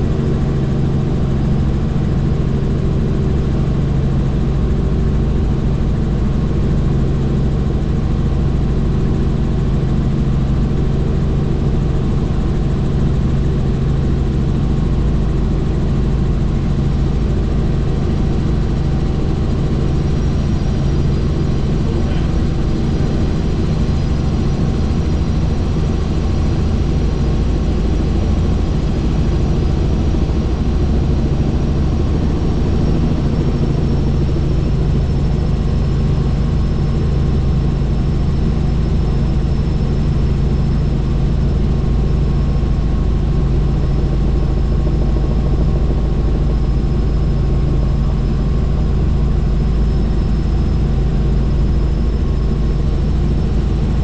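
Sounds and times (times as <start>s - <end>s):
helicopter turbine and rotor drone: 0.0s - 54.0s.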